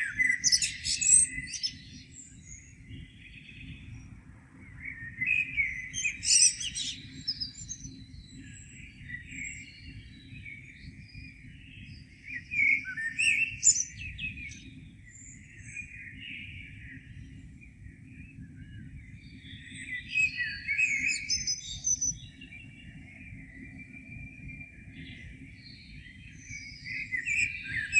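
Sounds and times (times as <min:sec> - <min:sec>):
songbirds singing and chirping: 0:00.0 - 0:27.9.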